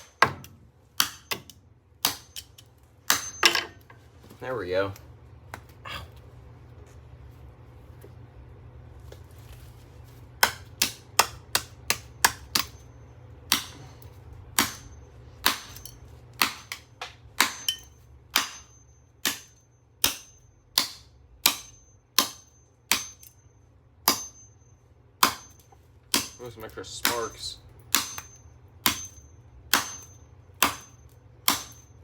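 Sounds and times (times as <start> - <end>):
hammer striking metal motor: 3.1 - 3.8, 10.4 - 16.8, 17.4 - 23.4, 24.0 - 32.0.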